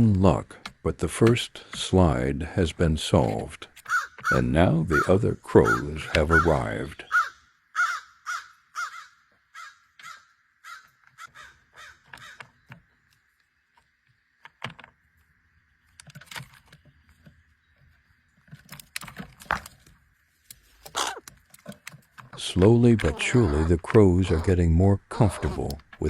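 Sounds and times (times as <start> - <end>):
crows cawing: 3.8 - 12.6, 20.9 - 21.2.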